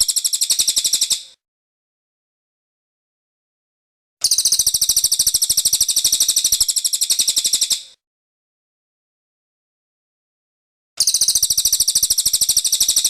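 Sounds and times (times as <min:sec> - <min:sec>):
bird singing a high trill: 0:11.0 - 0:13.0.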